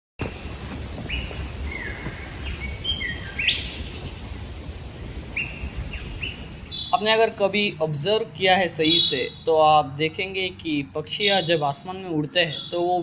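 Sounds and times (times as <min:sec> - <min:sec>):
birds whistled calls: 0:00.2 - 0:07.1, 0:08.8 - 0:09.5, 0:12.3 - 0:13.0
background hiss: 0:00.2 - 0:09.5.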